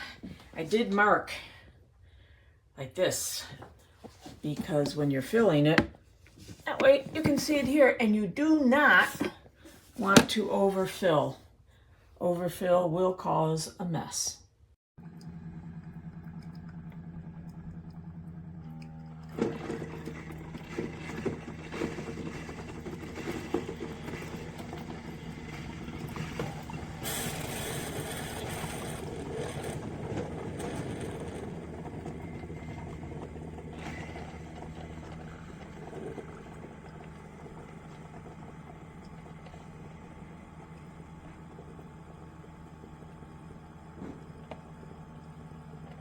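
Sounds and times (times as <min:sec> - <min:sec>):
coffee maker humming: 0:03.2 - 0:11.3, 0:15.0 - 0:46.0
coffee maker hissing: 0:15.0 - 0:46.0.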